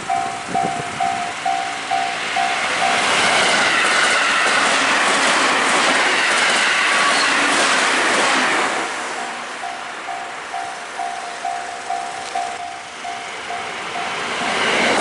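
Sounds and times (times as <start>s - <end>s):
level crossing warning bell: 0.0s - 3.8s, 9.1s - 14.8s
train wheels clattering: 0.1s - 8.8s.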